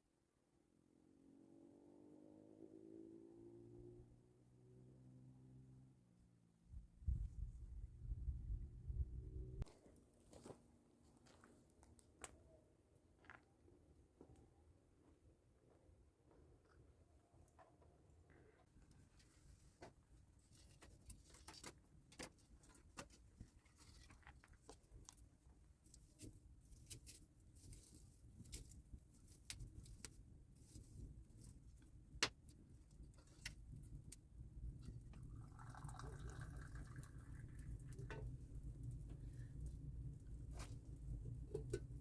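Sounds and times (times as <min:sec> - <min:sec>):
low rumble: 0:06.8 - 0:09.7
wood fire crackling: 0:25.9 - 0:42.0.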